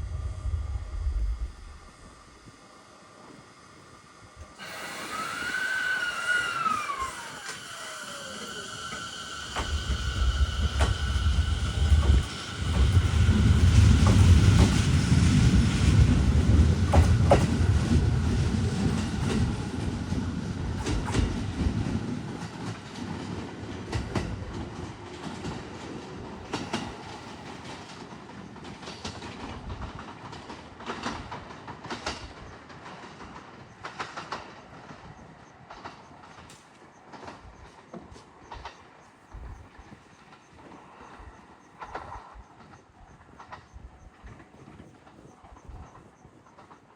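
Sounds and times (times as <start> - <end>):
electric train pulling away: 0.0 - 30.1
wheels clicking over rail joints: 4.5 - 46.9.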